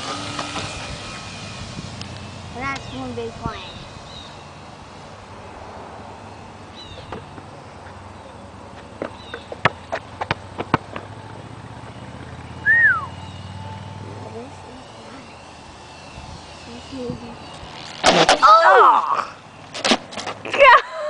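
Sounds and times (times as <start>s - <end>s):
bird chirp: 2.7s - 4.8s, 6.2s - 9.8s, 11.9s - 17.8s.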